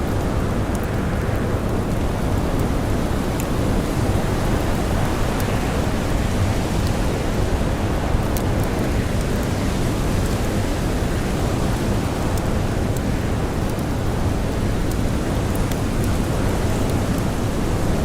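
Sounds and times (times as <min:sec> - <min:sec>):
blizzard wind blowing: 0:00.0 - 0:18.0
campfire crackles: 0:00.0 - 0:18.0.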